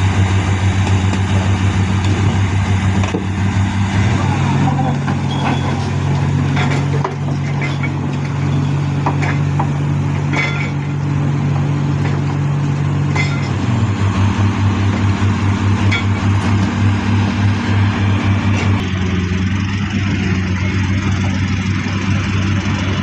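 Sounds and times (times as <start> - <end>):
diesel engine running under load: 0.0 - 23.0.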